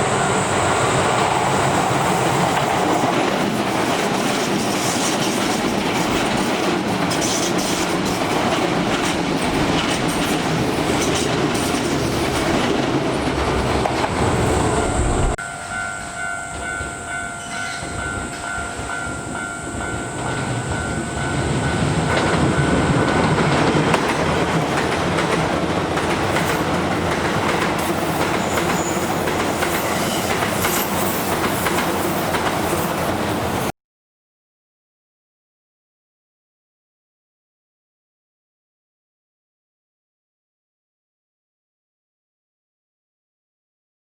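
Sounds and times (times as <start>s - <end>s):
electric train passing: 0.0s - 33.7s
level-crossing warning bell: 14.4s - 25.1s.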